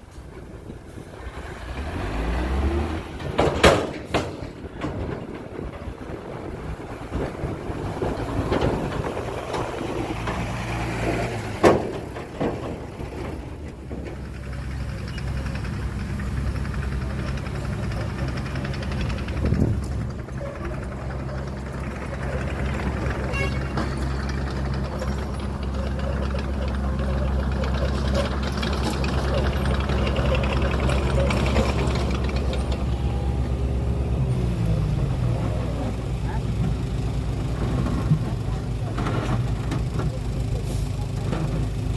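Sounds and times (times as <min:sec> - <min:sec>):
diesel engine idling: 0:00.0 - 0:41.9
metallic clanking and rattling: 0:02.8 - 0:34.8
loud clanking knock: 0:03.2 - 0:05.4.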